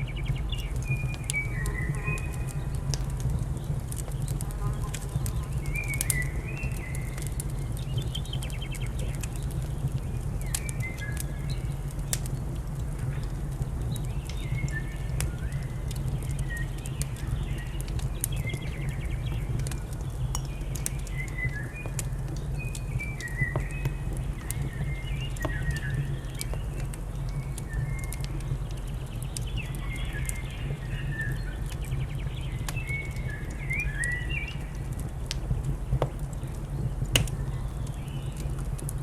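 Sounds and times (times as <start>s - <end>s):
small birds chirping: 0.0s - 12.3s, 13.0s - 39.0s
wood fire crackling and popping: 0.0s - 39.0s.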